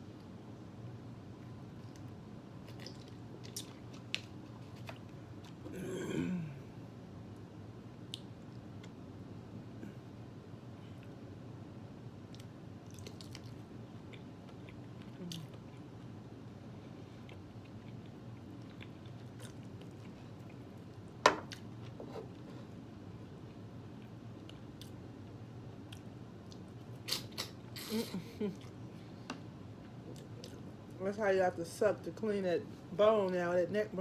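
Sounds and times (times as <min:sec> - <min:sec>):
quiet chewing: 0:01.4 - 0:05.6, 0:12.3 - 0:16.1, 0:16.8 - 0:22.8, 0:23.4 - 0:27.7, 0:28.4 - 0:31.0.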